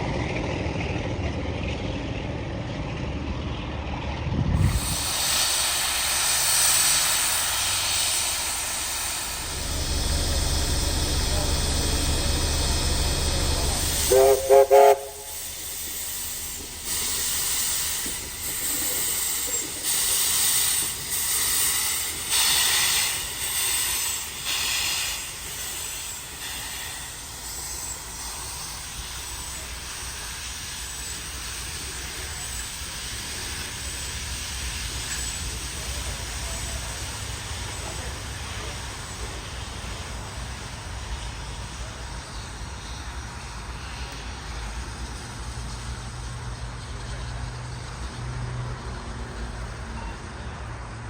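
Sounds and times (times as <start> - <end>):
steam hiss and rumble: 0.0 - 51.0
steam locomotive chuffing: 0.0 - 51.0
steam locomotive whistle: 7.2 - 18.2.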